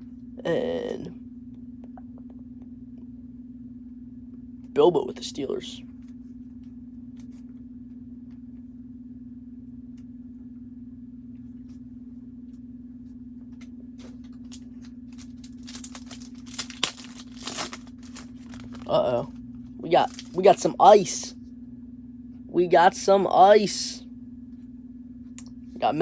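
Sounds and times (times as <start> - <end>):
low electrical hum: 0.0 - 26.0
card pack wrapper crinkling: 14.0 - 18.9, 19.9 - 20.6.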